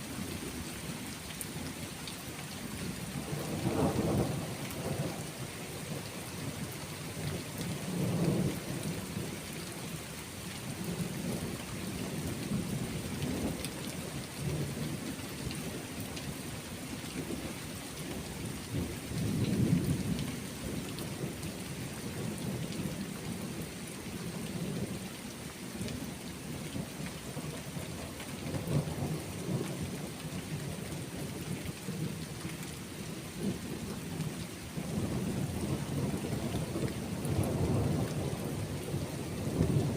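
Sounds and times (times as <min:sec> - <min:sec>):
steady rain: 0:00.0 - 0:39.9
low rolling thunder: 0:03.2 - 0:06.6, 0:07.8 - 0:09.3, 0:33.4 - 0:39.9.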